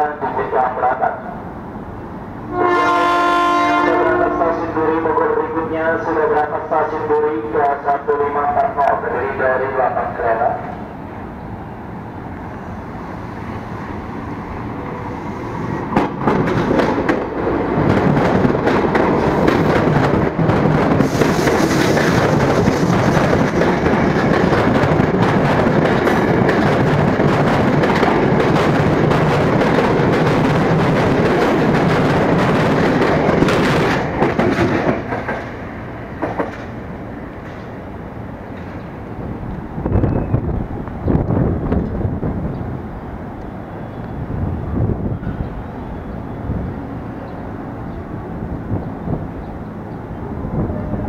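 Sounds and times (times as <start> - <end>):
train wheels clattering over rail joints: 15.9 - 35.6, 36.2 - 36.8.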